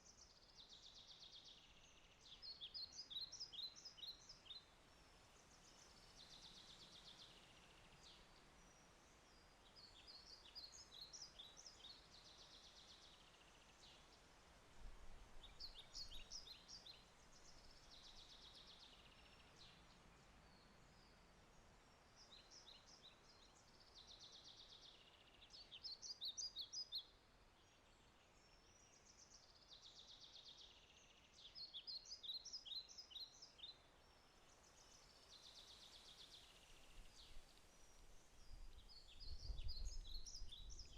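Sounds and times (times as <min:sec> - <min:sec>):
faint steady hiss: 0:00.0 - 0:40.9.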